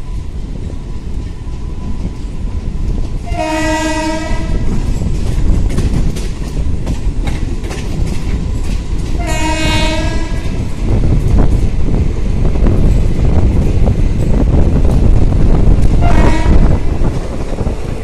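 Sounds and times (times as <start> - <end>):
train rumbling on track: 0.0 - 18.0
locomotive horn blasts: 3.3 - 4.7, 9.2 - 10.5, 16.0 - 16.8.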